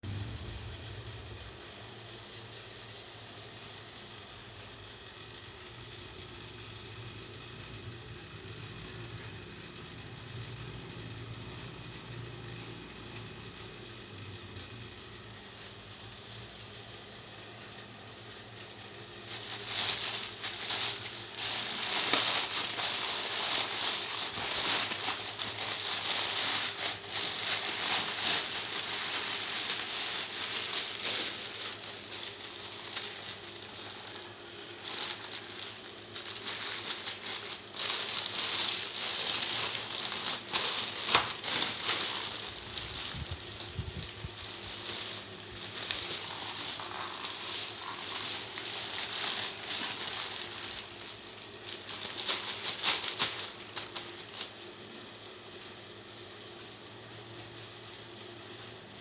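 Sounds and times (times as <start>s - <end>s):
faint hum: 0.0s - 59.0s
plastic packaging crinkling: 19.2s - 55.2s.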